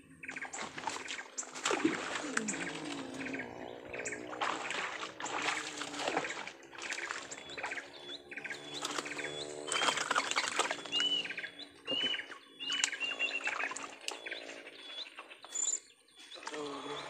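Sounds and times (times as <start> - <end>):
birds whistling and chirping: 0.0 - 1.5, 6.8 - 17.0.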